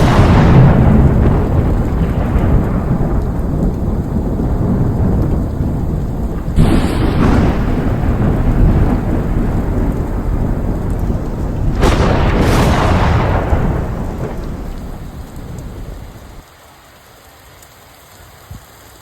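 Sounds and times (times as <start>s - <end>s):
thunder crash: 0.0s - 16.4s
thunder rumbling: 0.0s - 16.4s
heavy rain falling: 0.0s - 19.0s.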